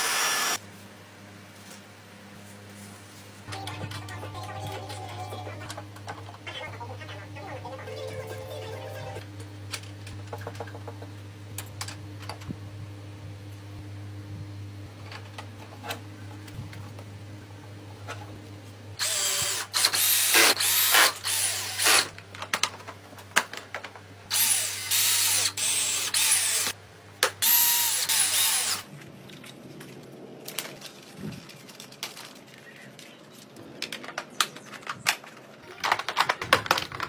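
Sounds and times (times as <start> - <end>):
power drill running: 0.0 - 0.6, 19.0 - 22.2, 24.3 - 28.9.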